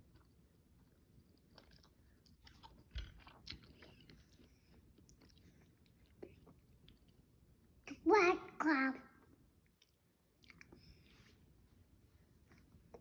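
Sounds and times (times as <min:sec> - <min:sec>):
child chewing: 0:00.0 - 0:07.4, 0:09.6 - 0:11.2.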